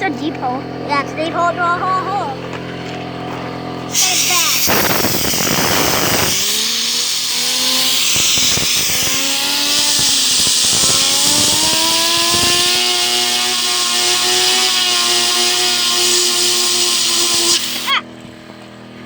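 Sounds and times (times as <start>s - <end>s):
compressed air hissing: 3.9s - 18.0s
fidget spinner whine: 3.9s - 18.1s.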